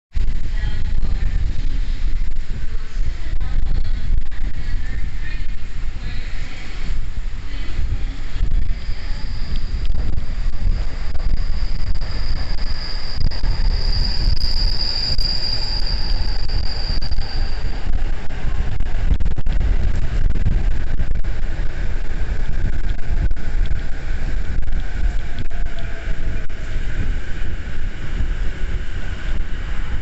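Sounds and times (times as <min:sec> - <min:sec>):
wind buffeting microphone: 0:00.1 - 0:30.0
electric train whine: 0:00.2 - 0:30.0.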